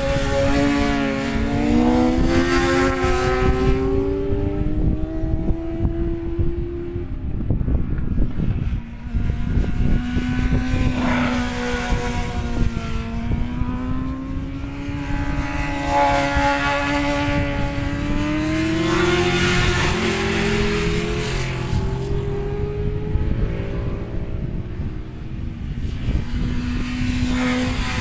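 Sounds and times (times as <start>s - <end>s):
engine droning with rising pitch: 0.0s - 28.0s
wind rumble on microphone: 0.0s - 28.0s.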